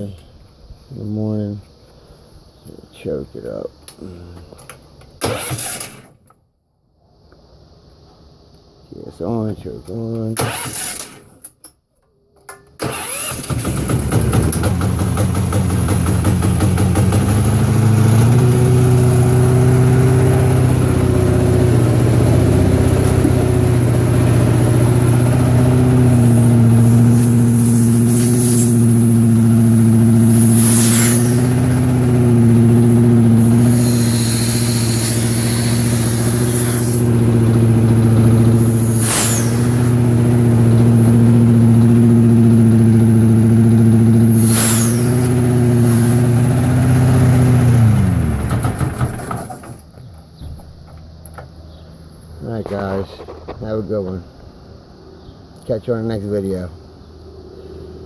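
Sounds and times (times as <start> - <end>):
gasoline engine starting and running: 4.6 - 6.3, 9.5 - 11.6, 12.6 - 54.0.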